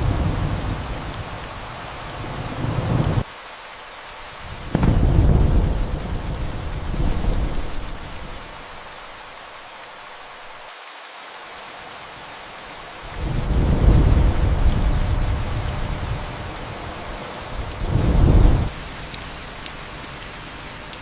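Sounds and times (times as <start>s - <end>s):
thunder clap rumbling: 0.0s - 1.4s, 4.5s - 8.5s, 13.2s - 16.5s, 17.6s - 18.7s
steady rain: 0.0s - 21.0s.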